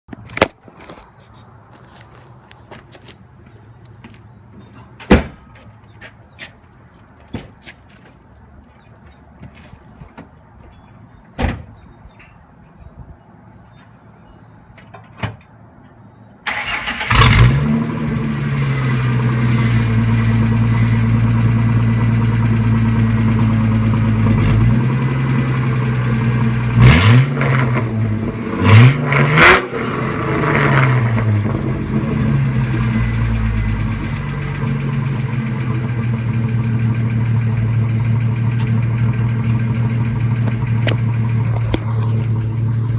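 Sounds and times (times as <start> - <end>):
car engine starting and idling: 16.4 - 42.9
engine revving: 16.5 - 35.4.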